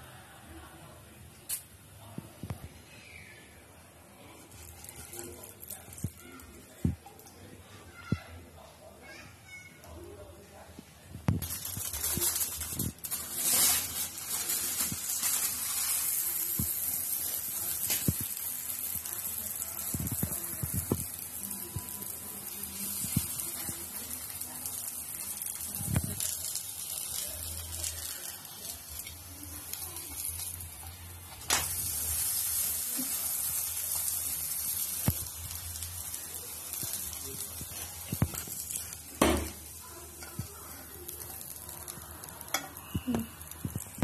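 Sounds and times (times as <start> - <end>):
flatbread sizzling in oil: 4.3 - 6.7, 11.4 - 44.0.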